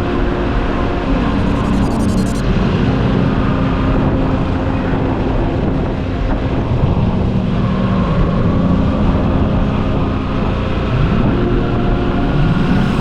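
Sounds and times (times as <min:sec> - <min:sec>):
road and wind rumble: 0:02.4 - 0:13.0.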